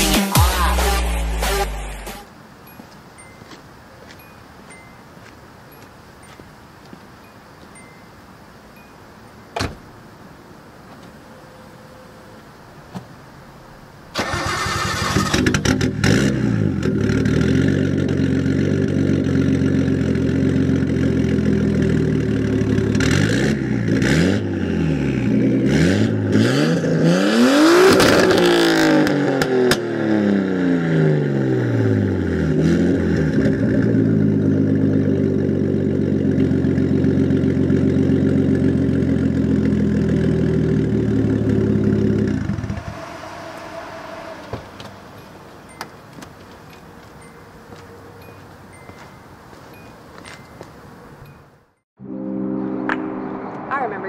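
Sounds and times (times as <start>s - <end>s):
exhaust cracks: 14.2s - 25.8s, 32.5s - 46.7s
car engine revving and idling: 14.7s - 46.4s.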